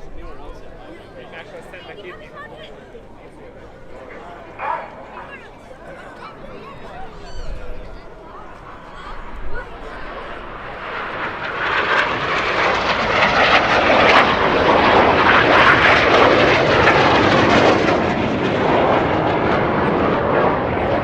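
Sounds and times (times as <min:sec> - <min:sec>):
jets flying past: 0:07.1 - 0:21.0.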